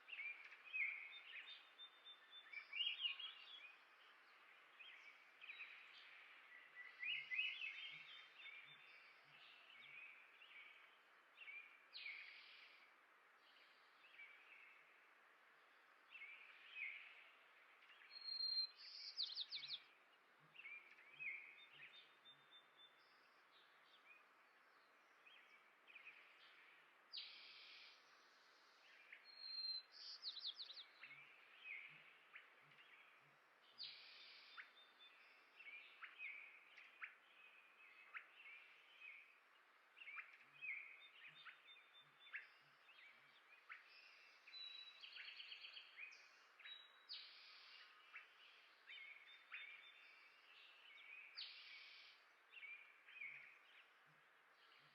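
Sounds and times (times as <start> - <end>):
faint outdoor hiss: 0.0 - 54.9
songbirds chirping and singing: 0.0 - 54.9.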